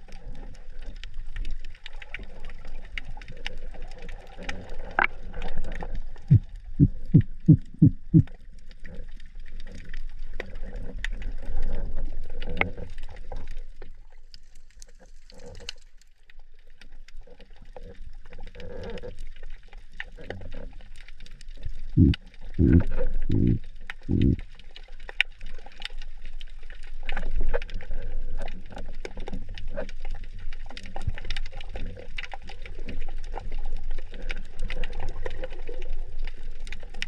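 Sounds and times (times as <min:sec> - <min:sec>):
low underwater rumble: 0:00.0 - 0:14.0, 0:20.2 - 0:24.7
underwater clicks and crackle: 0:00.0 - 0:37.0.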